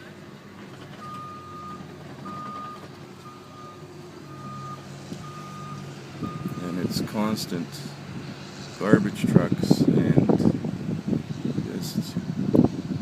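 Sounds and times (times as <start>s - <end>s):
truck engine running: 0.0s - 13.0s
truck reversing alarm beeping: 0.9s - 6.8s.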